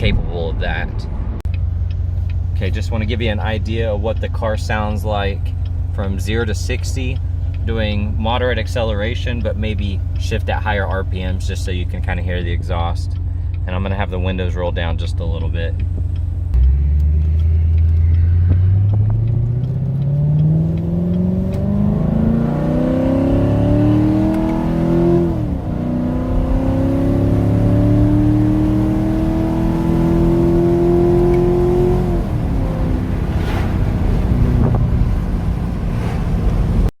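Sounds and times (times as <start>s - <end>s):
car engine accelerating hard: 16.5s - 36.9s.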